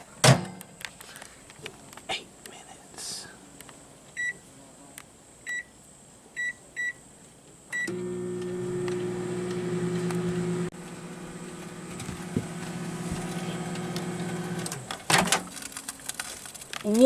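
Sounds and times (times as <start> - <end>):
microwave keypad beeping: 7.8 - 9.6
microwave running hum: 7.8 - 15.0.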